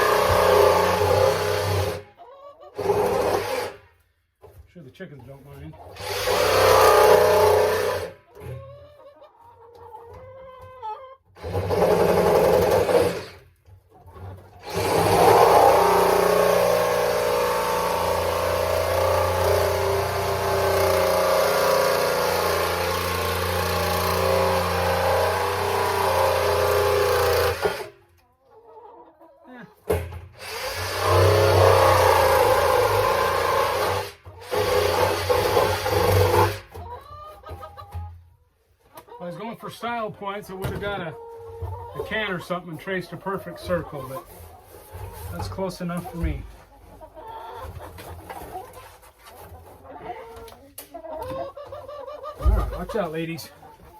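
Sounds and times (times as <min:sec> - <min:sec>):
power tool cutting plastic drum: 0:00.0 - 0:02.1, 0:02.8 - 0:03.8, 0:06.0 - 0:08.2, 0:11.4 - 0:13.4, 0:14.6 - 0:28.0, 0:30.3 - 0:36.7.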